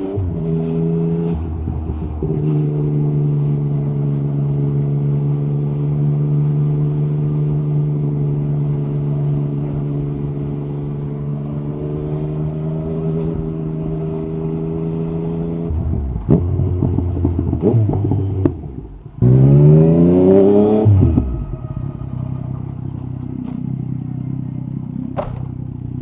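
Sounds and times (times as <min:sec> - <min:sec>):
motorcycle engine at steady revs: 0:03.3 - 0:17.9, 0:22.6 - 0:26.0.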